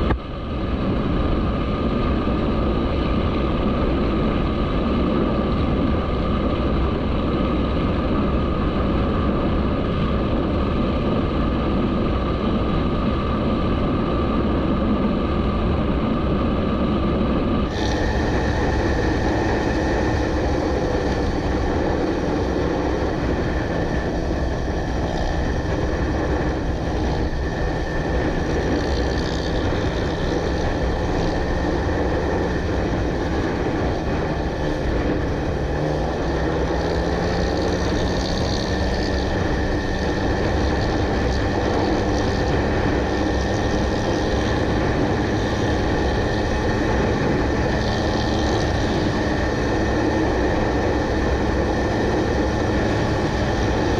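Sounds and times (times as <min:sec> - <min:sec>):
motorcycle engine running: 0:00.0 - 0:53.9
steady rushing noise: 0:00.0 - 0:53.9.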